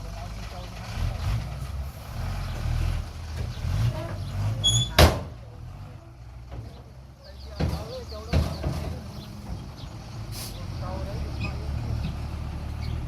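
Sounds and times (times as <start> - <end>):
diesel engine low rumble: 0.0 - 13.0
brief squeak: 4.6 - 5.0.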